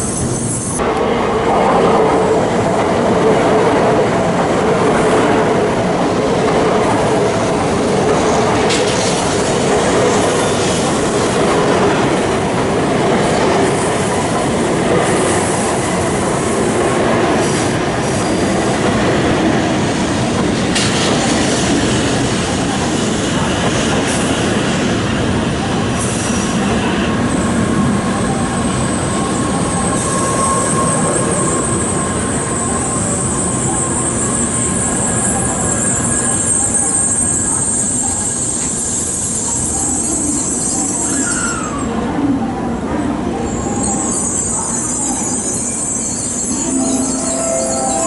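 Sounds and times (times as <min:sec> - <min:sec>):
train wheels rumbling on rail: 0:00.0 - 0:48.0
whine dropping in pitch: 0:46.5 - 0:48.0.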